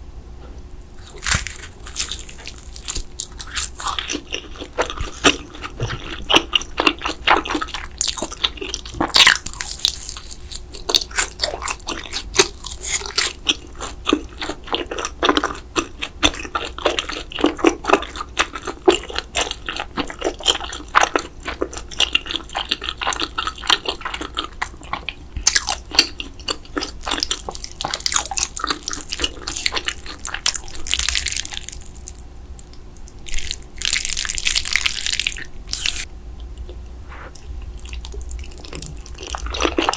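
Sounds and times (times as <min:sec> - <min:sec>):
crunchy bites: 0:01.0 - 0:15.6
wet chewing and smacking: 0:01.0 - 0:39.9.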